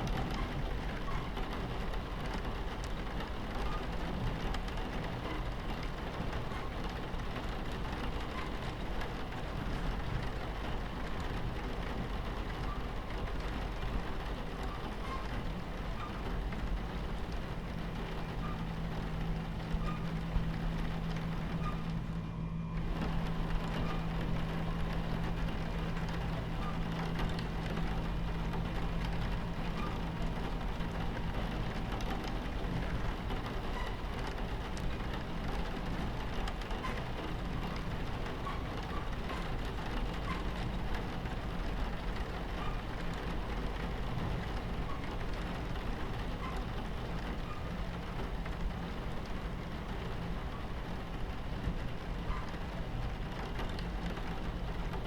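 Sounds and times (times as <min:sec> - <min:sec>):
rain against window: 0:00.0 - 0:55.0
train rumbling on tracks: 0:00.0 - 0:55.0
low hum: 0:16.4 - 0:36.2.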